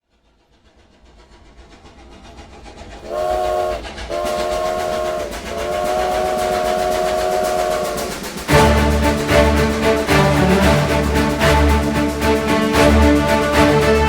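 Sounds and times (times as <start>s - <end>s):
steam train chugging: 0.0s - 14.0s
train chime whistle: 3.1s - 8.8s.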